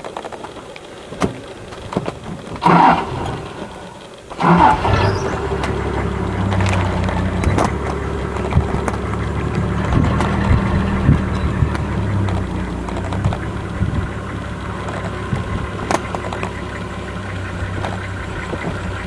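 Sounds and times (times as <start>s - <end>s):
vehicle engine idling: 0.6s - 19.0s
short rising squeals: 2.6s - 12.8s.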